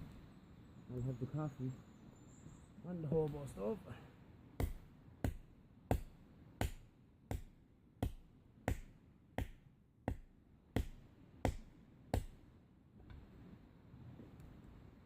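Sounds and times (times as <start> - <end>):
axe chopping wood: 4.6 - 12.4.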